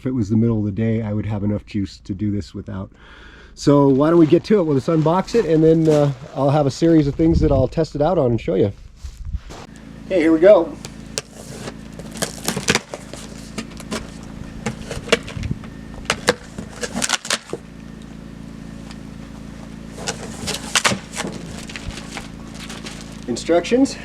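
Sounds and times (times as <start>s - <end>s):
generator humming: 0.0s - 7.1s, 9.5s - 24.0s
cardboard box and plastic rustling: 10.8s - 23.5s.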